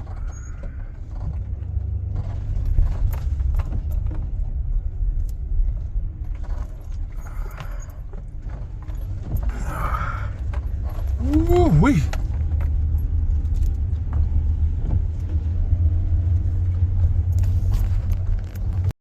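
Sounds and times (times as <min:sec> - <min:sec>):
knocks and rattles: 0:00.0 - 0:18.9
road rumble in van cabin: 0:00.0 - 0:19.0
man talking: 0:11.2 - 0:12.2.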